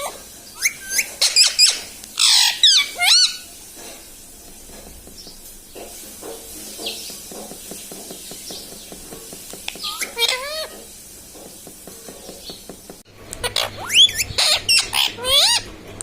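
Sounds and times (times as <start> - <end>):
parrot call notes: 0.0 - 3.5, 9.7 - 10.8, 13.4 - 15.7
parrot squawking: 0.0 - 3.6, 9.7 - 10.9, 13.3 - 15.7
faint parrot chatter: 9.7 - 10.9, 13.4 - 15.7.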